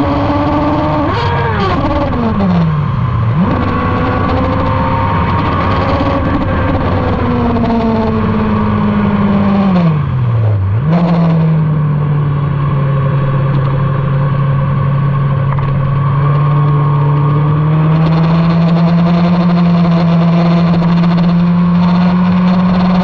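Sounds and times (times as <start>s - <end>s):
motorcycle engine at speed: 0.0s - 23.0s.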